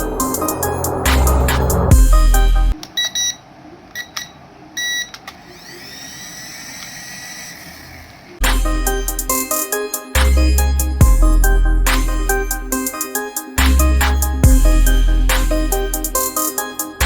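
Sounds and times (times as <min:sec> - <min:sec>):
electronic background music: 0:00.0 - 0:02.8, 0:08.4 - 0:17.0
rising whine: 0:00.0 - 0:02.8
small motor whirring: 0:05.4 - 0:08.3.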